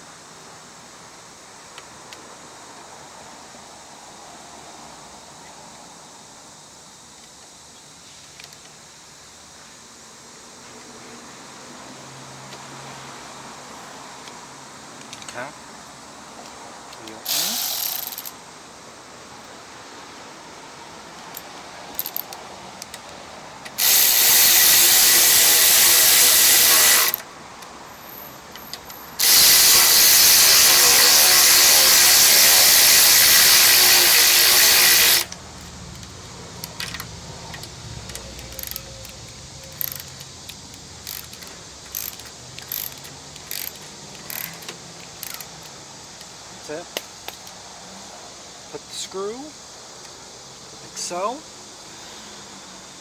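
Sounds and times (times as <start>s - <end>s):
tools and parts clicking: 16.4s - 18.4s, 21.2s - 46.3s, 47.0s - 47.6s
pneumatic air ratchet: 17.0s - 18.4s, 21.4s - 23.0s, 23.6s - 27.3s, 28.0s - 46.3s.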